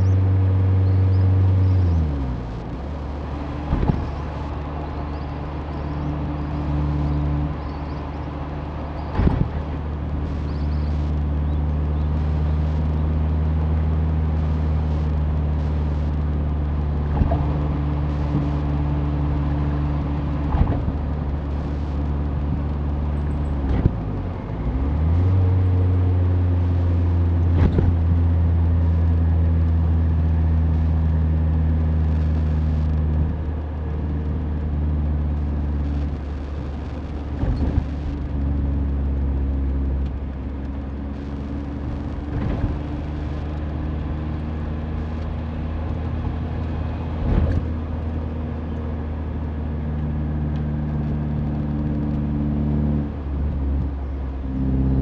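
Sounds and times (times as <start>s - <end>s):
car engine running: 0.0s - 55.0s
road knocks: 2.8s - 7.6s, 8.8s - 10.4s, 17.0s - 22.7s, 27.2s - 28.5s, 44.8s - 48.5s.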